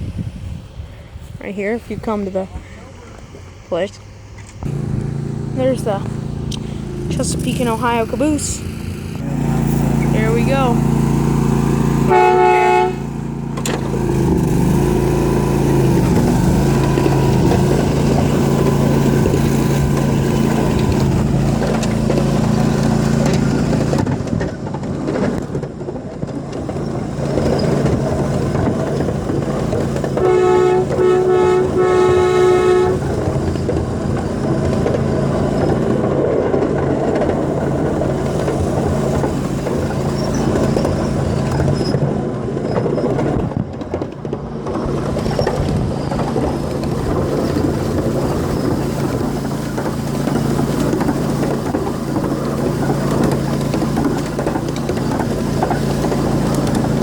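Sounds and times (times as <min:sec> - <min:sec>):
diesel locomotive droning: 0:00.0 - 0:57.0
rumble of passing train: 0:00.0 - 0:57.0
multi-chime air horn blasts: 0:12.0 - 0:13.4, 0:30.2 - 0:33.1.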